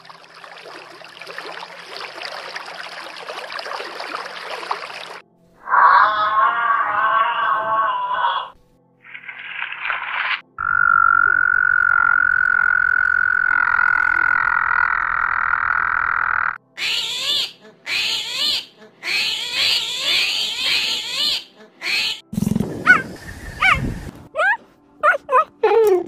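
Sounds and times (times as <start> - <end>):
frog trilling and chirping: 10.6 - 17.4.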